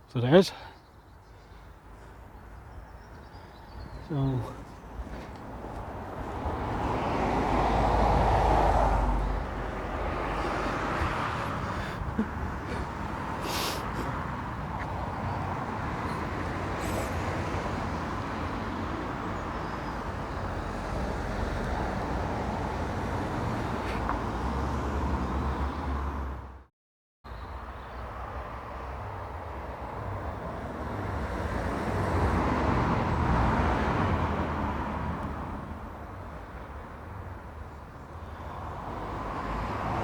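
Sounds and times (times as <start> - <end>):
steady traffic noise: 0.0 - 26.7, 27.3 - 40.0
vehicle passing close by: 5.6 - 26.6, 29.7 - 36.3, 38.4 - 40.0.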